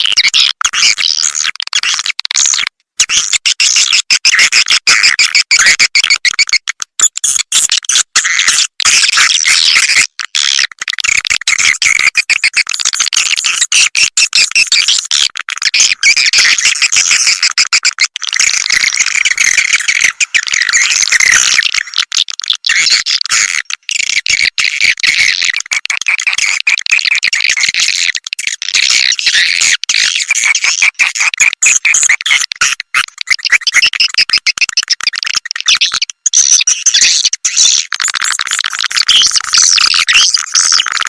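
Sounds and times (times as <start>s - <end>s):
swiftlets twittering and chirping: 15.7s - 23.6s, 28.7s - 41.0s.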